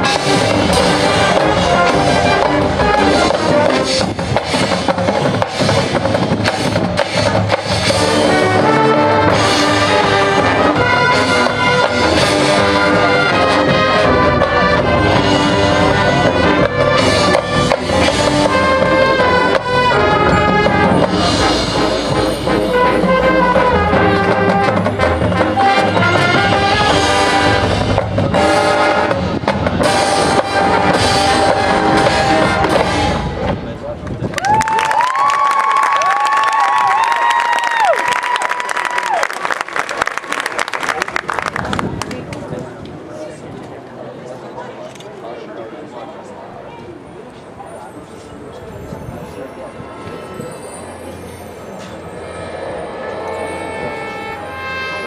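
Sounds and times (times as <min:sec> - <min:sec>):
marching band brass melody: 0:00.0 - 0:33.8, 0:50.0 - 0:55.0
marching percussion: 0:00.0 - 0:34.3, 0:48.7 - 0:55.0.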